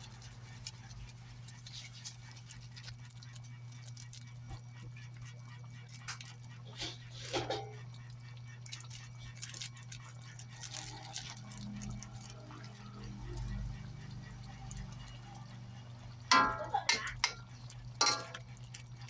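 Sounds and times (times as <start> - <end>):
steady low hum: 0.0 - 19.0
curry bubbling in a pan: 10.5 - 19.0.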